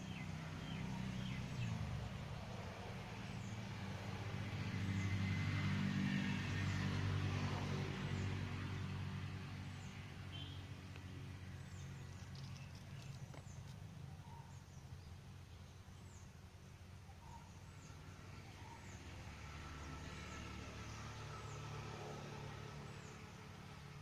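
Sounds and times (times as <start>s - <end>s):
vehicle engine passing by: 0.0s - 14.1s, 17.2s - 24.0s
small bird chirping: 11.6s - 16.3s.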